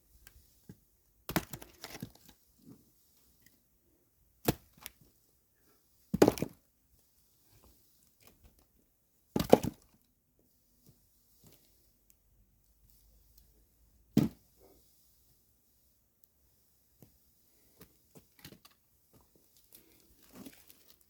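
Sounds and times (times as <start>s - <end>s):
axe striking wood: 14.2s - 14.4s.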